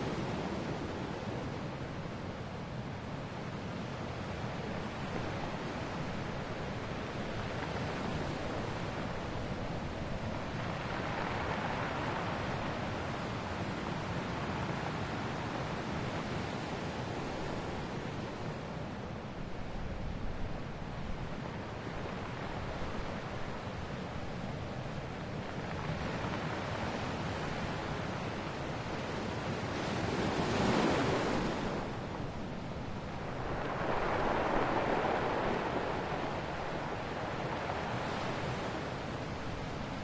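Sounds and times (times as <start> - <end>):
ocean waves breaking: 25.7 - 40.0.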